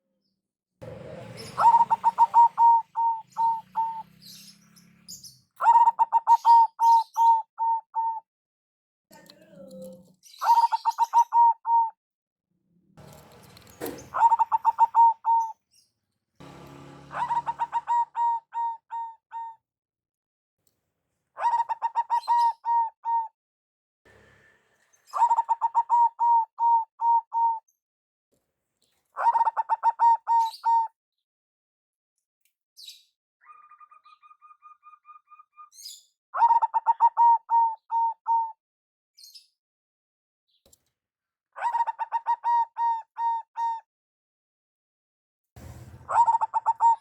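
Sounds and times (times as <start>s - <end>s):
dove cooing: 0.8s - 8.2s, 9.2s - 12.0s, 13.8s - 15.6s, 16.8s - 19.6s, 21.4s - 23.3s, 25.2s - 27.6s, 29.2s - 30.9s, 36.4s - 38.5s, 41.6s - 43.8s, 46.0s - 47.0s.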